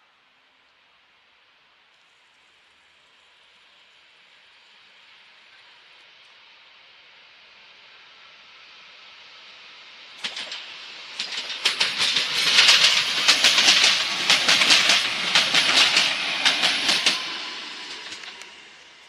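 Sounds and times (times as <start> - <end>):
train passing with rail noise: 0.0 - 19.0
wheels clattering over track: 10.2 - 19.0.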